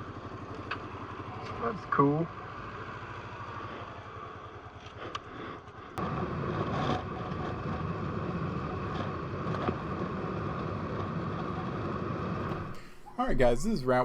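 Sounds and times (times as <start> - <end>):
motorcycle engine: 12.4 - 13.6.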